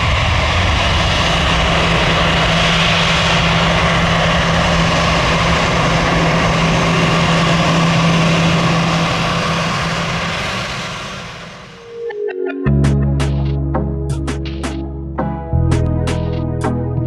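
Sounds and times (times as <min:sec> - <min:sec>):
jet engines roaring: 0:00.0 - 0:12.6.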